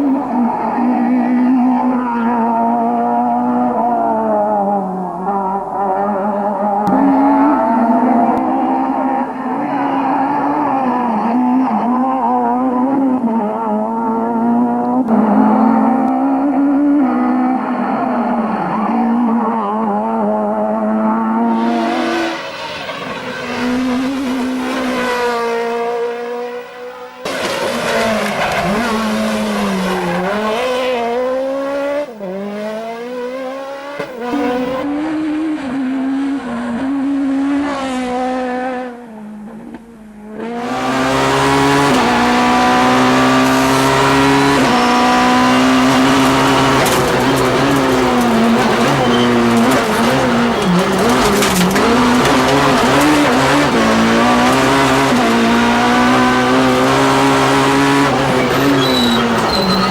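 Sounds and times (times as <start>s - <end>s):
rally car engines revving: 0.0s - 59.9s
tire squeal: 6.8s - 12.4s, 21.4s - 31.9s, 40.6s - 59.9s.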